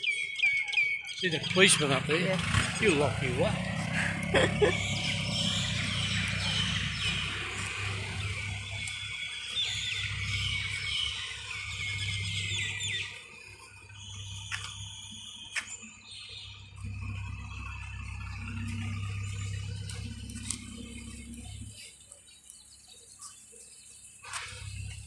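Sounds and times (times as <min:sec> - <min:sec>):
small birds chirping: 0:00.0 - 0:25.0
low steady hum: 0:16.4 - 0:22.0.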